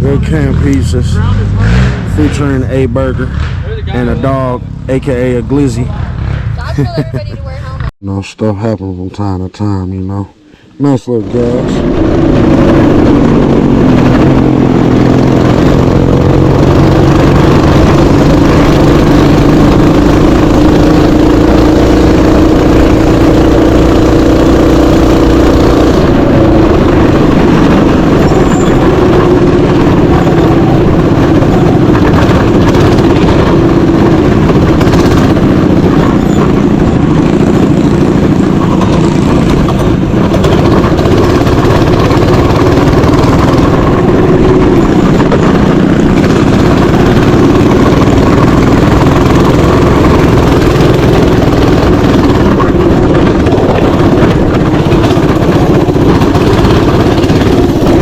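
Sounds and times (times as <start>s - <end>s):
mini bike engine running: 0.0s - 7.9s, 11.2s - 58.0s.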